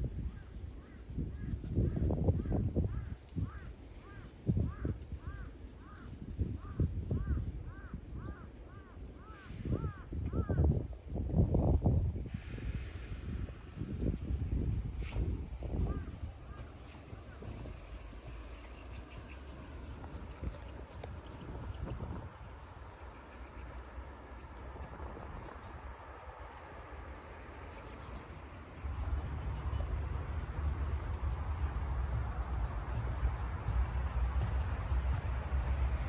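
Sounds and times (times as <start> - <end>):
high-pitched insect drone: 0.8 - 36.0
low rumble: 28.5 - 36.0.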